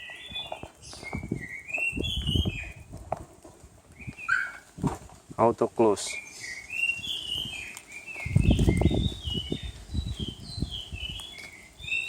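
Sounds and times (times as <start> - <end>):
bird whistling: 0.0 - 2.8, 4.0 - 4.6, 6.1 - 12.0.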